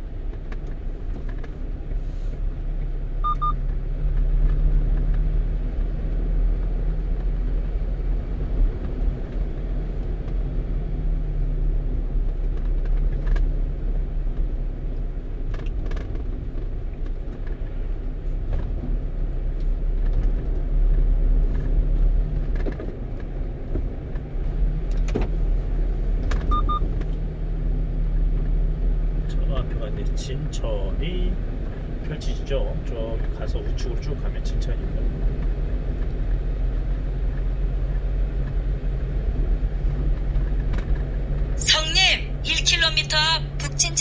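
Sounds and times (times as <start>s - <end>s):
truck engine and road rumble: 0.0s - 44.0s
short double beep: 3.2s - 3.6s, 26.5s - 26.8s.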